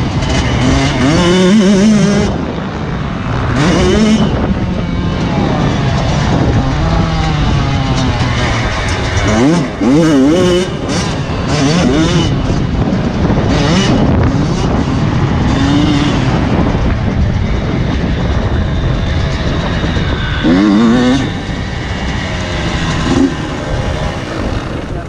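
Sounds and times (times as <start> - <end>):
motocross bike engines revving: 0.0 - 25.0.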